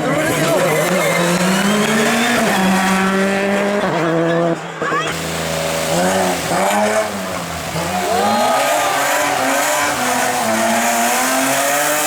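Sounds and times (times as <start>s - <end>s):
car engine revving high: 5.2s - 12.0s.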